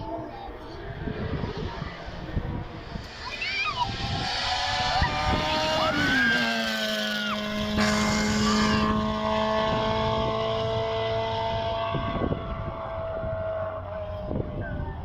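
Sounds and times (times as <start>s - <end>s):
racing car engine passing: 0.0s - 15.0s.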